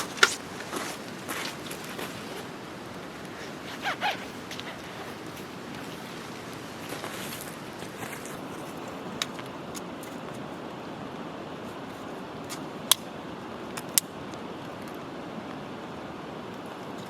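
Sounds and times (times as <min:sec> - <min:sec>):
rain hissing: 0:00.0 - 0:10.6.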